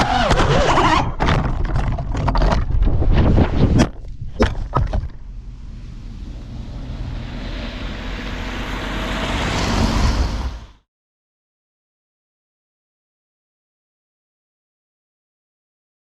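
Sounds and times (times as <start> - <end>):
drone motor and wind noise: 0.0 - 10.8.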